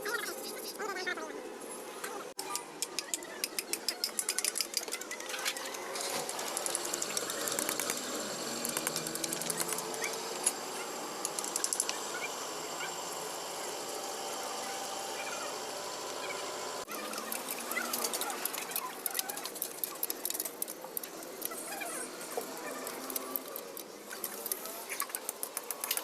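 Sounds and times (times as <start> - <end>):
rapid metallic tool clicking: 11.2 - 12.0.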